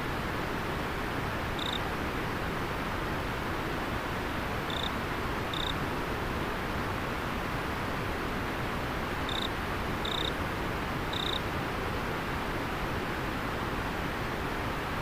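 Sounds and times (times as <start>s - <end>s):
insect chirping: 1.6s - 1.8s, 4.7s - 4.9s, 5.5s - 5.8s, 9.3s - 10.3s, 11.1s - 11.4s.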